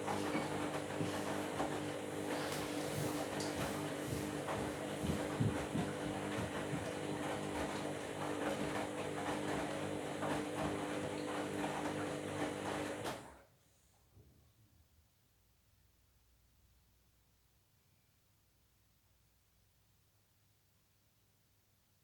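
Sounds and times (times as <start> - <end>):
washing machine motor hum: 0.0 - 13.4
washing machine drum knocking: 3.1 - 13.0.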